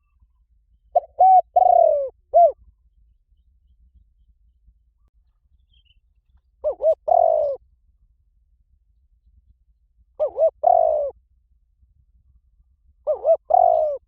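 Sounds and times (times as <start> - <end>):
dove cooing: 0.9 - 2.6, 6.6 - 7.6, 10.2 - 11.2, 13.0 - 14.0.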